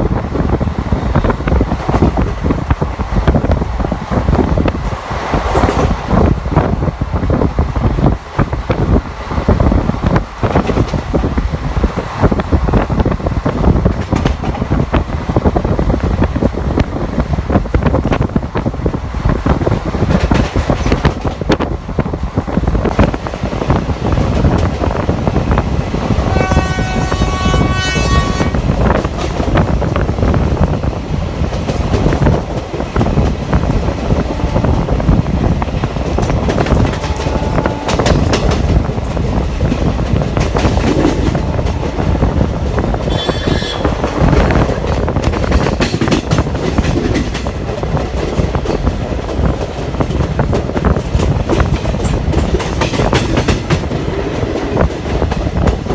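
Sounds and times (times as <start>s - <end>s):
train coach rumble: 0.0s - 55.9s
train horn blast: 26.2s - 28.7s, 34.3s - 35.0s, 36.8s - 38.4s, 43.0s - 44.6s
wheels clicking over rail joints: 26.4s - 55.9s.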